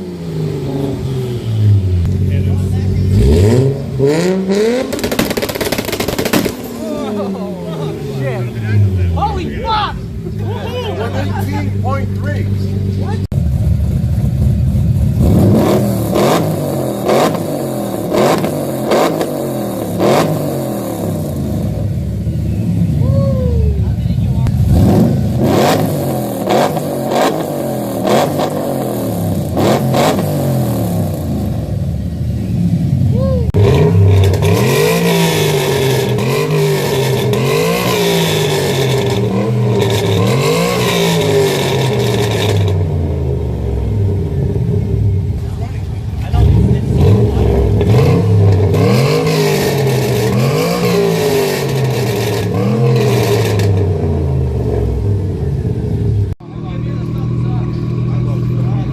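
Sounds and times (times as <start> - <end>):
car engine revving: 0.0 - 58.9
car engine rough idle: 11.3 - 15.5, 54.6 - 58.9.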